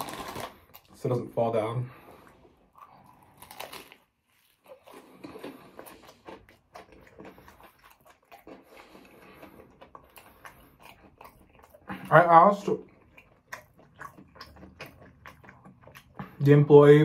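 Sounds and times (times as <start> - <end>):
potato chips cracking: 0.0 - 1.1, 3.3 - 4.1.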